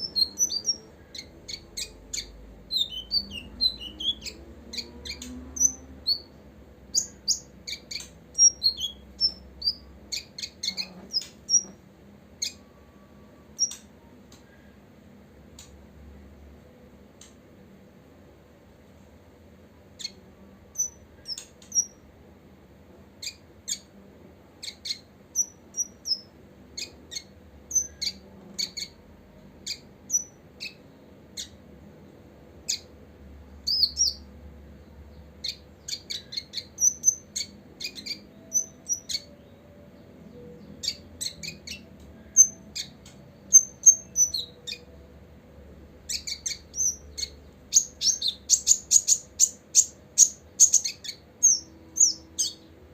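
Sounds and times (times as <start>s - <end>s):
bird chips and twitters: 6.9s - 11.7s.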